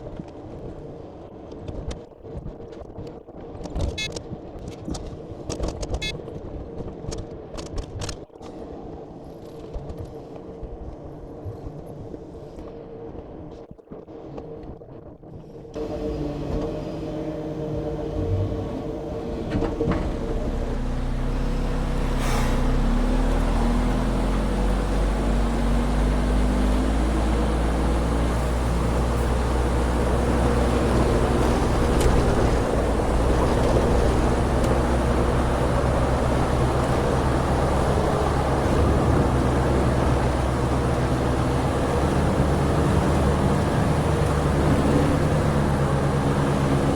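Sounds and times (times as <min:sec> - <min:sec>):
diesel truck engine running: 0:15.8 - 0:46.9.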